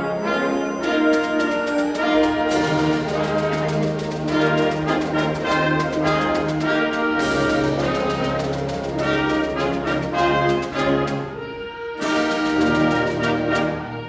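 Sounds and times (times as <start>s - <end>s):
concert band playing: 0.0s - 11.4s, 12.0s - 14.0s.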